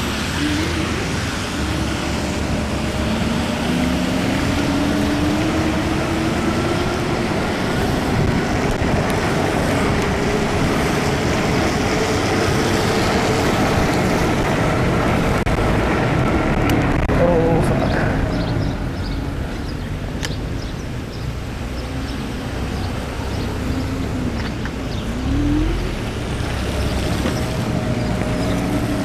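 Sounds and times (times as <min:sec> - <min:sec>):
wind rushing: 0:00.0 - 0:19.5
tyre noise on wet road: 0:00.0 - 0:29.0.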